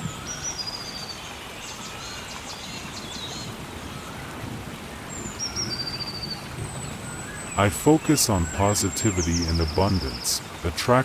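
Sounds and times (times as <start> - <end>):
steady rain: 0.0 - 11.0
birds calling: 5.1 - 11.0.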